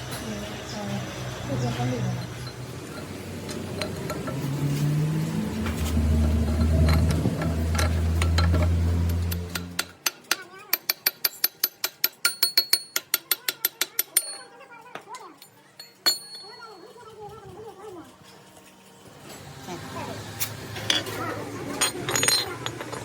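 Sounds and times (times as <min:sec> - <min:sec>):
low machine hum: 0:00.0 - 0:10.0
rapid metallic clicks: 0:05.4 - 0:14.4.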